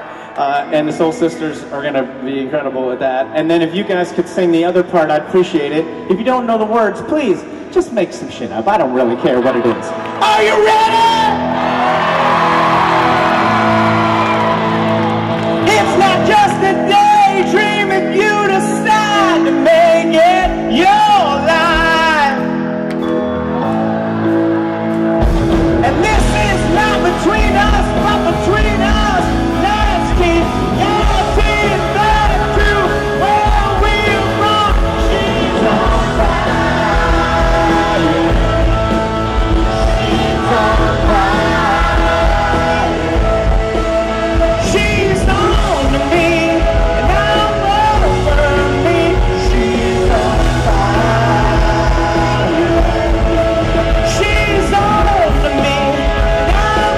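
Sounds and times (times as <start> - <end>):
pop-rock band playing: 9.6 - 56.9
drums: 10.2 - 56.9
person singing: 25.9 - 56.9.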